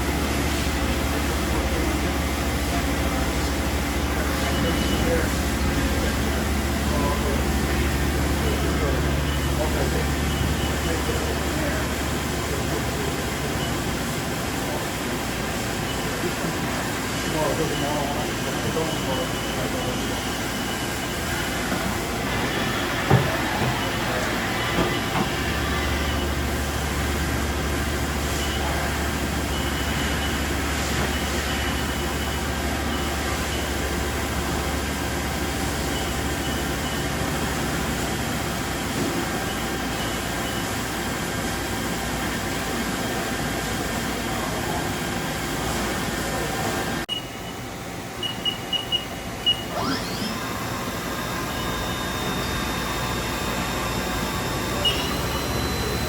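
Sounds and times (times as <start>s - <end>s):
machining center humming: 0.0s - 56.0s
machine whine rising: 18.4s - 34.7s, 49.4s - 56.0s
short high beeps: 48.2s - 50.6s, 51.2s - 56.0s.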